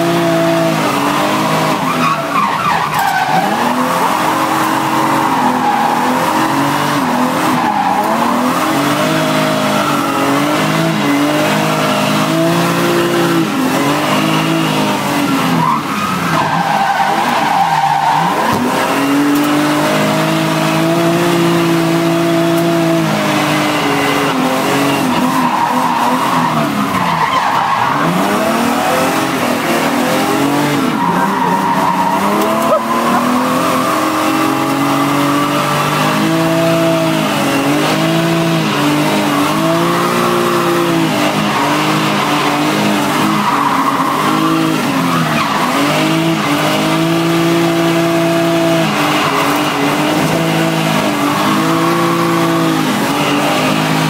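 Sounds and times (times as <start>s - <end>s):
car engine revving: 0.0s - 54.0s
tyres squealing: 25.0s - 36.4s.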